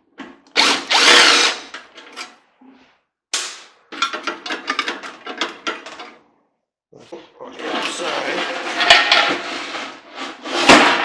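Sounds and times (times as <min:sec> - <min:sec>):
power drill running: 0:00.5 - 0:01.7.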